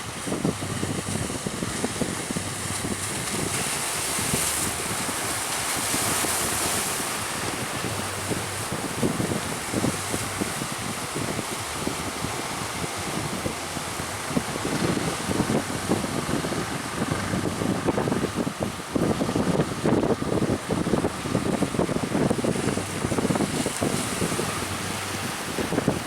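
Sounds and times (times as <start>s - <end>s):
rough sea waves rushing: 0.0s - 26.0s
wind buffeting microphone: 0.0s - 26.0s.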